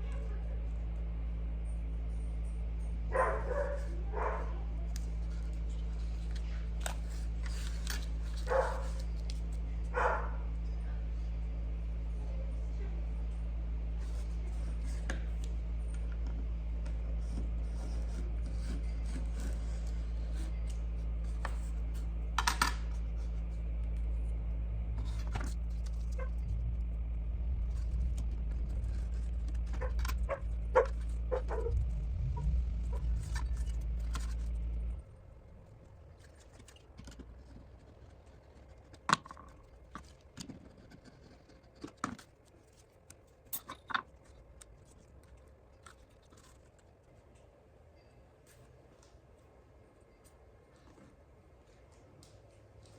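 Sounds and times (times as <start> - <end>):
electric motor hum: 0.0 - 41.3
hand tool scraping wood: 17.2 - 22.1.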